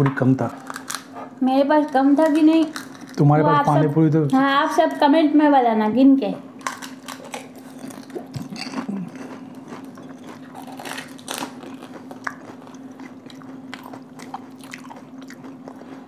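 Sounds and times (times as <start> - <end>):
steady low hum: 0.0 - 16.0
crisp shells crunching: 2.2 - 3.2, 6.6 - 13.2.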